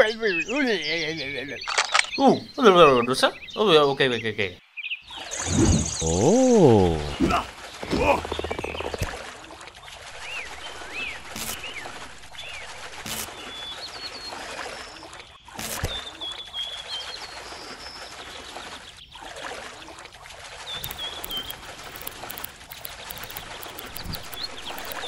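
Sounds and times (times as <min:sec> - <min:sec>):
small birds chirping: 0:00.0 - 0:25.0
sharp clicks: 0:01.6 - 0:02.2, 0:07.8 - 0:09.2, 0:11.3 - 0:11.7, 0:20.8 - 0:25.0
water trickling: 0:05.1 - 0:25.0.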